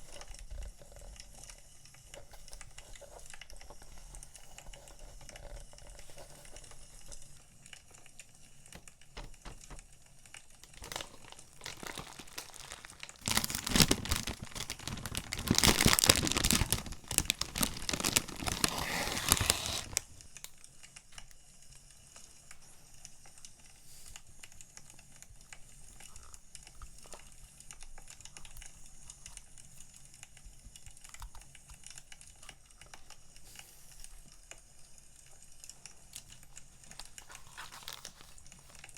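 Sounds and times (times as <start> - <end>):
quiet rustling and handling: 0.0 - 21.3, 22.1 - 38.9
packaging crinkling and tearing: 8.8 - 20.5, 35.9 - 38.9.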